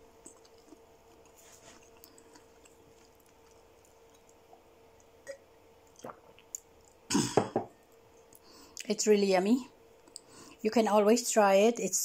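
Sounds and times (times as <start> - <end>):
faint chewing: 0.0 - 7.1
faint steady hum: 0.0 - 12.0.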